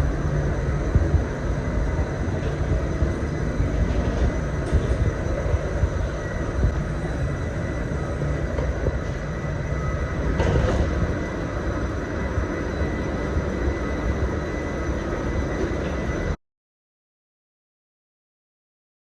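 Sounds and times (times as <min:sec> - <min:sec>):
jet aircraft rumble: 0:00.0 - 0:16.4.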